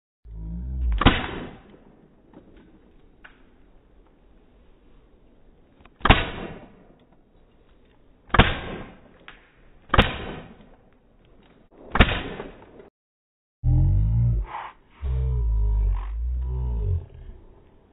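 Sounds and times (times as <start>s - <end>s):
paintball marker shots: 9.9s - 10.7s.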